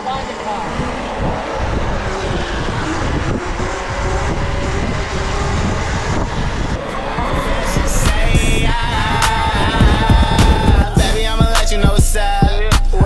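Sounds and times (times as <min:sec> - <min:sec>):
road and motor noise: 0:00.0 - 0:10.7
wind buffeting microphone: 0:00.0 - 0:12.6.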